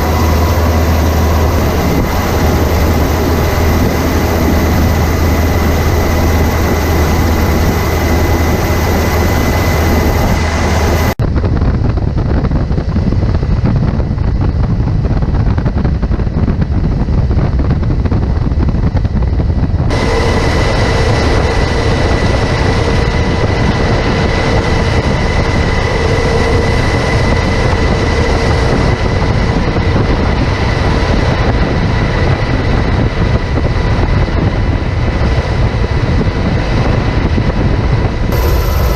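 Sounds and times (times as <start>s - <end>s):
machinery rumbling roar: 0.0s - 16.2s, 19.4s - 38.9s
wind noise: 0.0s - 38.9s
faint steady whine: 38.3s - 38.9s.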